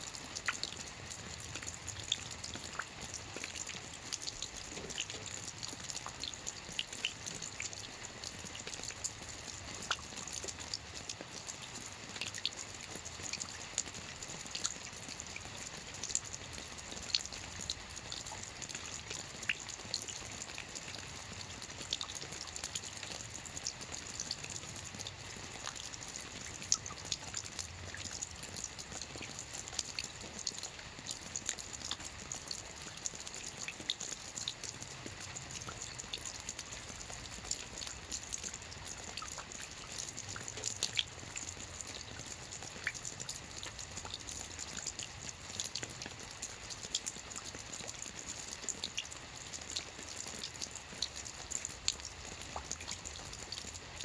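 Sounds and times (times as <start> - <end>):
soft rain on a roof: 0.0 - 54.0.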